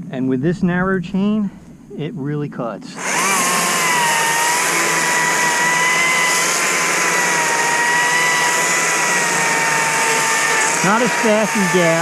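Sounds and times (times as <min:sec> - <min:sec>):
electric chainsaw motor whine: 0:03.0 - 0:12.0.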